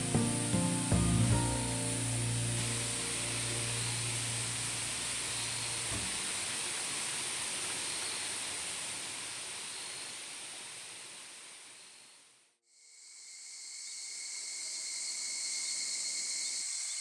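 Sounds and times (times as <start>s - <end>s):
low held music tones: 0.0s - 6.2s
high insect drone: 0.0s - 7.2s, 12.8s - 17.0s
mountain stream hissing: 0.0s - 12.5s.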